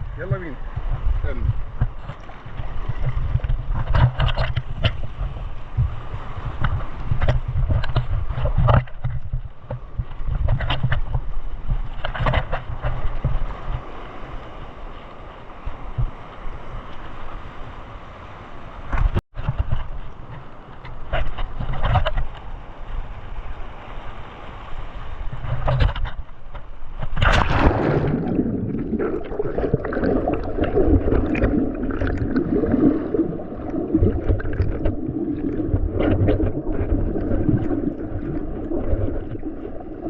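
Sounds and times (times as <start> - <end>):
wind on microphone: 0.0 - 14.9, 24.6 - 40.0
sea water washing and splashing: 0.0 - 40.0
sharp splashes or knocks: 27.0 - 40.0.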